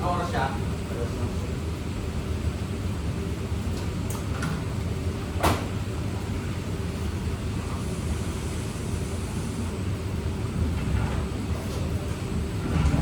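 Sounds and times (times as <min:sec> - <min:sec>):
low background rumble: 0:10.1 - 0:13.0.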